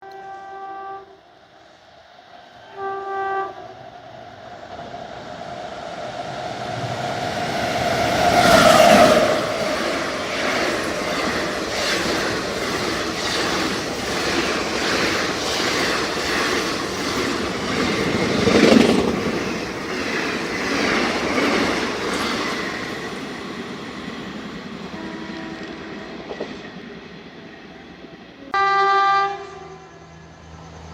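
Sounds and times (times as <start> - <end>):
train horn blasts: 0.0 - 1.3, 2.6 - 3.8, 24.9 - 26.4, 28.4 - 30.1
train rumbling past: 0.1 - 30.9
wheels clacking over rail joints: 6.6 - 27.2.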